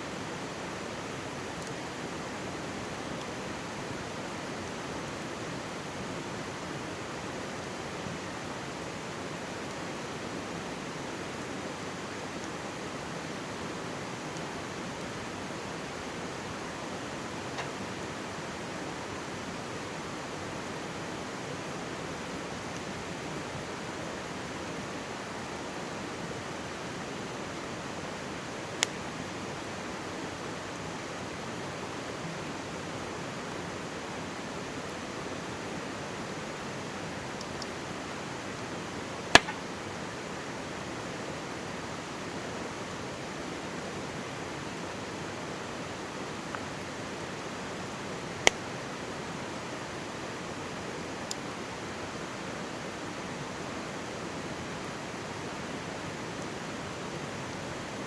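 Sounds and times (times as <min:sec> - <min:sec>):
stream babbling: 0:00.0 - 0:25.0, 0:39.3 - 0:40.1
campfire wood popping and crackling: 0:11.2 - 0:18.5, 0:39.3 - 0:39.7, 0:48.3 - 0:48.8.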